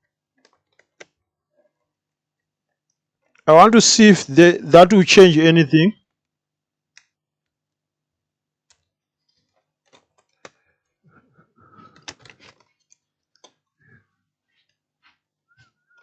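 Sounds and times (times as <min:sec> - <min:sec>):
laptop parts clicking and rattling: 0:00.0 - 0:03.4, 0:06.0 - 0:07.8, 0:08.5 - 0:14.9.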